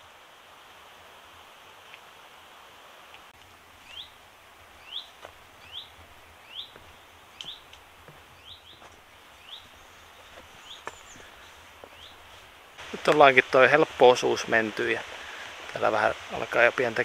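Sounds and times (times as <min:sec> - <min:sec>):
outdoor hiss: 0:00.0 - 0:17.0
songbird rising call: 0:03.8 - 0:04.2, 0:04.8 - 0:07.7, 0:08.4 - 0:08.8, 0:09.4 - 0:12.2.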